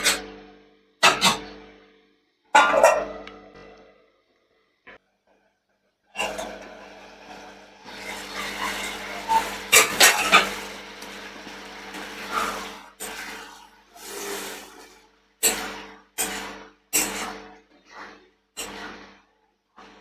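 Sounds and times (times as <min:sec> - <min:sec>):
utensil scraping a cooking pan: 0:06.2 - 0:17.3
steady hum: 0:06.2 - 0:20.0.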